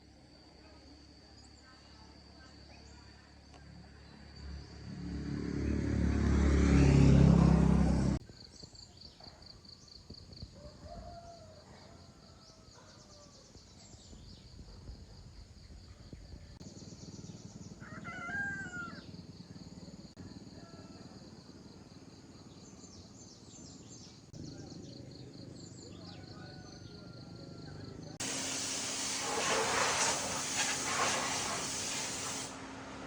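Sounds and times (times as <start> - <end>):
loud rising sound: 4.4 - 8.2
faint chicken calls: 10.6 - 13.4, 17.8 - 19.2.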